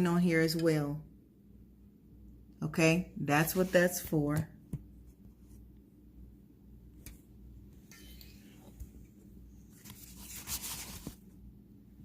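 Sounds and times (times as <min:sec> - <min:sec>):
packaging rustling and crinkling: 0:09.7 - 0:11.2.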